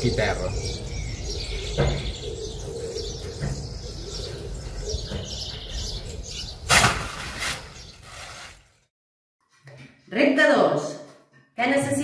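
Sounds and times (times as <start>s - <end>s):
small birds chirping: 0.0s - 6.7s, 7.3s - 8.4s.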